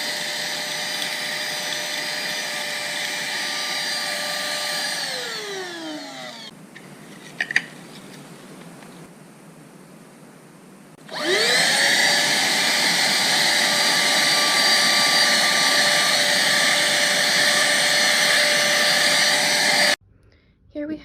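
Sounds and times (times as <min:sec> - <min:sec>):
handheld vacuum motor whine: 0:00.0 - 0:06.5, 0:11.0 - 0:20.0.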